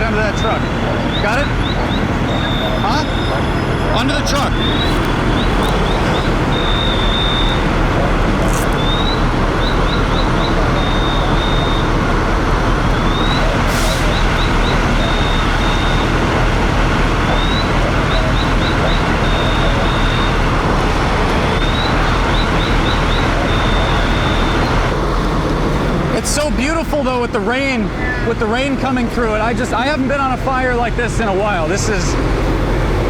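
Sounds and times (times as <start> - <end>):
high electronic alarm: 0.0 - 25.0
fire truck engines rumbling: 0.0 - 33.0.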